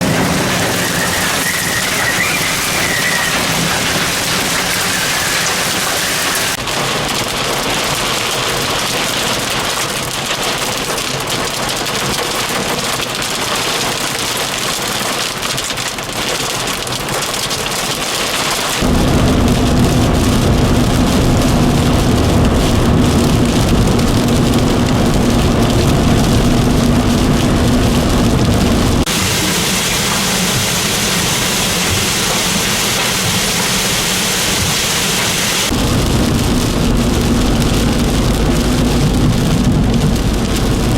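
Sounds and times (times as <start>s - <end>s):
heavy rain pouring: 0.0s - 40.9s
deep rumble: 18.8s - 40.9s.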